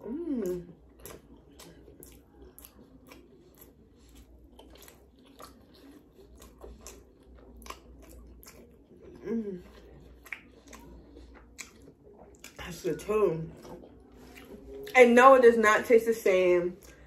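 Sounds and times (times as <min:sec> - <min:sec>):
person chewing food: 0:00.0 - 0:15.0, 0:16.8 - 0:17.0
wet mouth clicks: 0:10.1 - 0:12.6.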